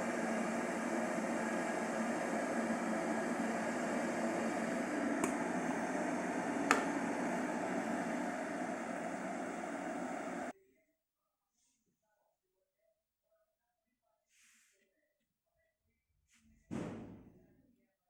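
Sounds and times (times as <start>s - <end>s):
tea maker hum and hiss: 0.0s - 10.5s.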